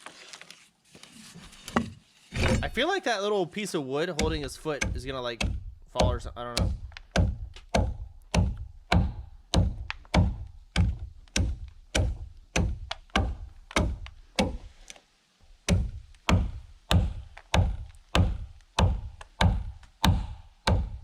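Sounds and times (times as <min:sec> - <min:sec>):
tool striking wood: 0:02.4 - 0:02.8, 0:04.2 - 0:14.7, 0:15.7 - 0:21.0.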